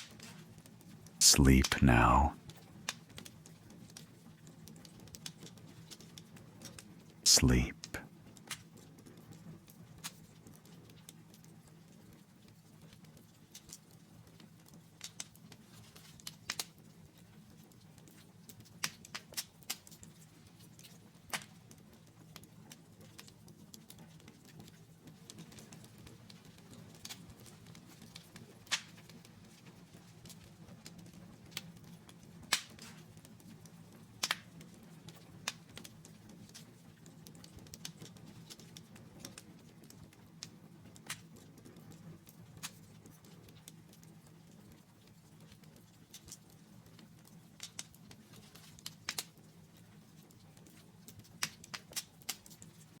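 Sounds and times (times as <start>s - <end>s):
fire crackling: 47.2s - 50.8s.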